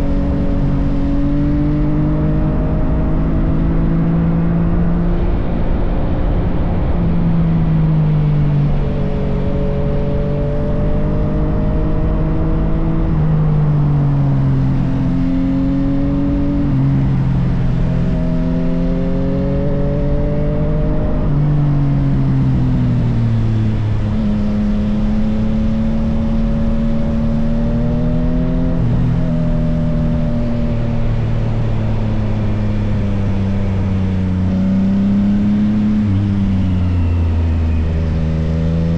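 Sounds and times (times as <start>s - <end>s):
motorcycle engine under way: 8.6s - 38.9s.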